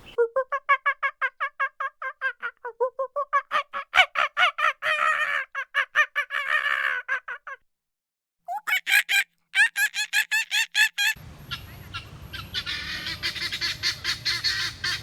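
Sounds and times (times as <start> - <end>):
poultry calling: 11.4 - 15.0.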